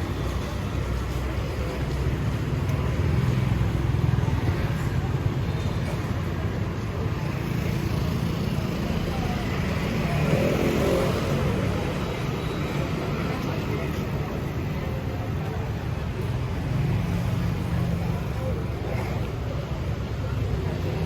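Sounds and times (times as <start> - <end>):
motorbikes and cars passing: 0.0 - 21.0.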